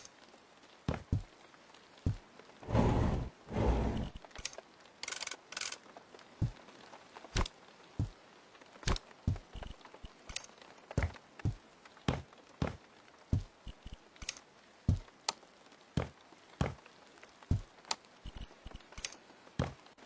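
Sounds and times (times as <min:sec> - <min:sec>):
scraping strokes: 0:02.6 - 0:04.2.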